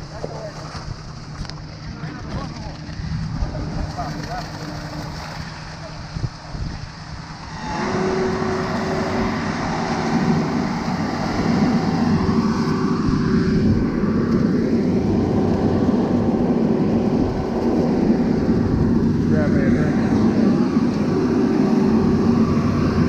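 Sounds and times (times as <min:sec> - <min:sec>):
heavy truck engine: 0:07.0 - 0:23.0.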